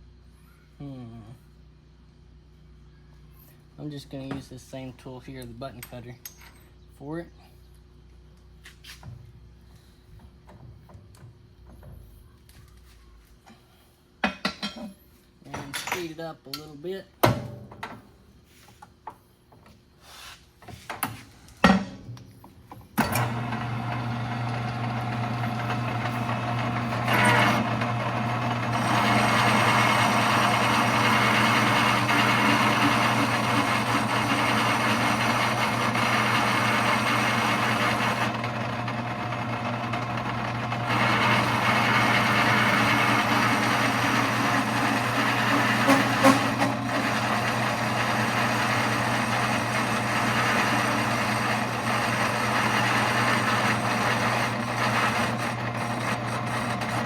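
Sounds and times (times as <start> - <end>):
cutter cutting metal: 23.0 - 57.0
metal lathe humming: 23.0 - 57.0.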